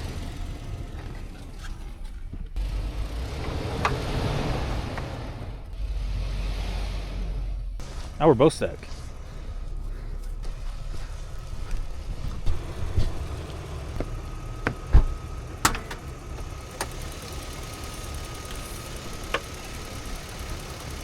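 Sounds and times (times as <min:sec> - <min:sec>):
car engine running: 0:00.0 - 0:21.0
sharp knocks and thumps: 0:10.4 - 0:17.0.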